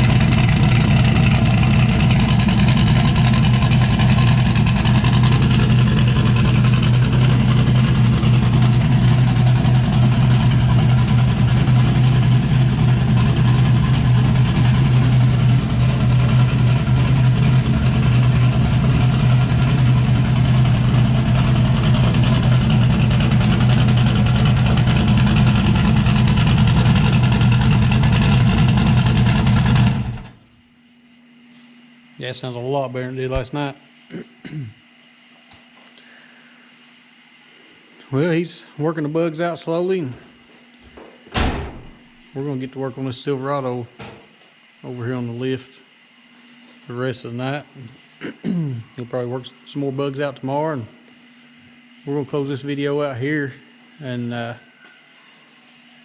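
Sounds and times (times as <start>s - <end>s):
truck engine idling: 0.0s - 30.4s.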